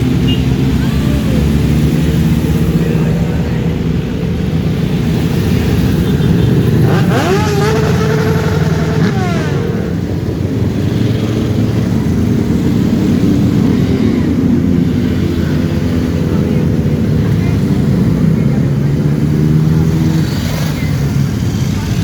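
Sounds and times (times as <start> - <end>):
motorcycle engines running: 0.0 - 22.0
motorcycle revving: 0.0 - 22.0
motorcycle passing by: 5.0 - 10.1.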